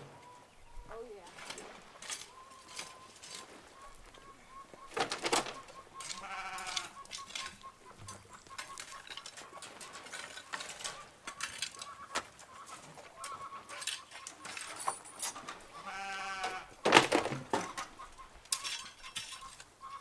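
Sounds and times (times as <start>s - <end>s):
clicks and knocks: 4.9s - 12.3s
goat bleating: 6.0s - 8.5s, 15.7s - 16.8s.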